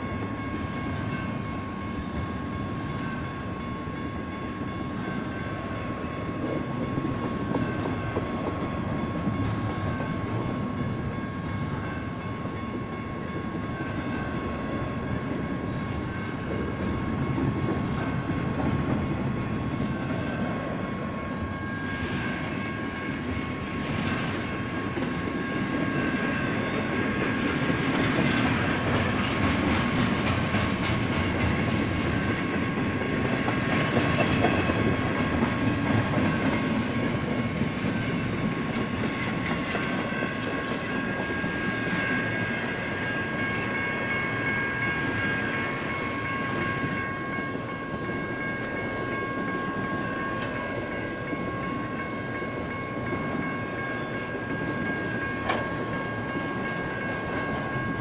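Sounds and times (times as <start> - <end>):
crossing bells ringing: 0.0 - 58.0
freight train wheels rumbling: 0.0 - 58.0.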